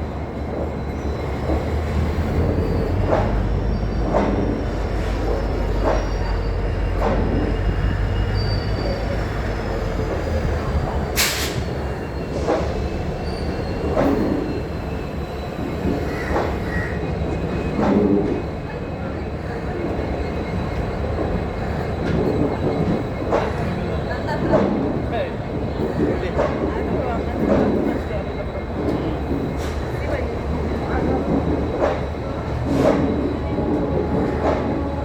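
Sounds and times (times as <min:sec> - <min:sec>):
train rumble: 0:00.0 - 0:35.0
train wheels knocking on rail joints: 0:00.6 - 0:07.8, 0:15.6 - 0:18.6, 0:25.8 - 0:35.0
wheel squeal: 0:02.4 - 0:09.9, 0:11.3 - 0:17.0.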